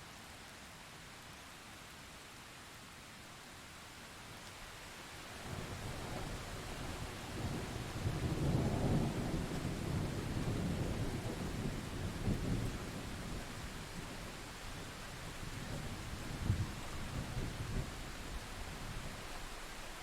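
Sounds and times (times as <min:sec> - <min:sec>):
steady rain: 0:00.0 - 0:20.0
rolling thunder: 0:05.5 - 0:14.1.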